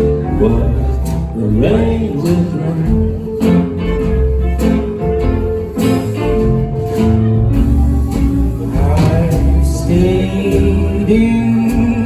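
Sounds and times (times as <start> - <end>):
man singing: 0.0 - 4.2, 8.5 - 12.0
live band playing: 0.0 - 12.0.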